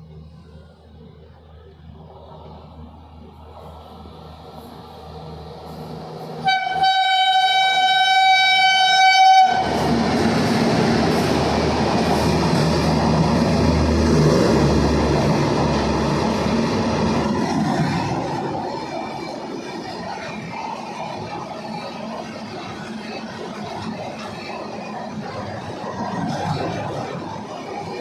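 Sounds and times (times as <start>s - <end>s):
train rolling rumble and wheel clatter: 0.0s - 28.0s
locomotive horn blast: 6.4s - 9.8s.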